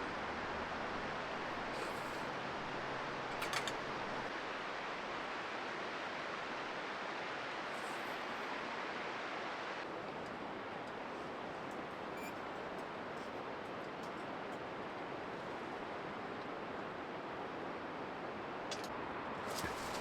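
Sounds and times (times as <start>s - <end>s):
falling rain hiss: 0.0s - 10.0s, 17.4s - 20.0s.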